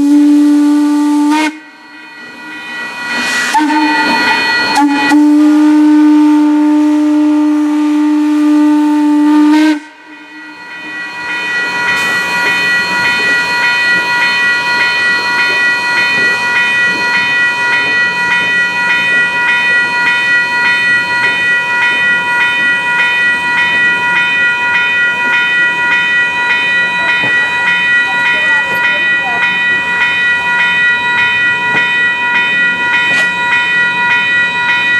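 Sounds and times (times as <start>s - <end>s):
steam whistle long note: 0.0s - 2.0s, 3.3s - 10.4s
locomotive bell ringing: 0.0s - 34.9s.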